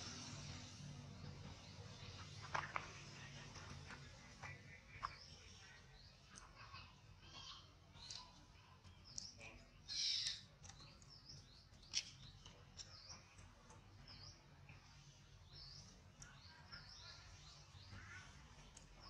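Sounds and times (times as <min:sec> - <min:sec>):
faint bird chirps: 0:04.4 - 0:19.0.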